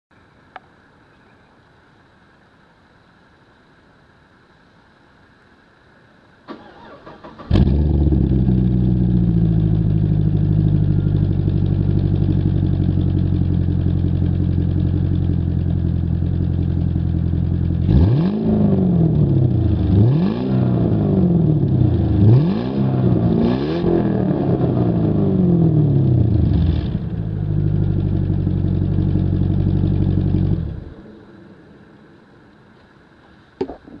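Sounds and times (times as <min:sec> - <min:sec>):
car engine idling and revving: 0:06.5 - 0:32.6.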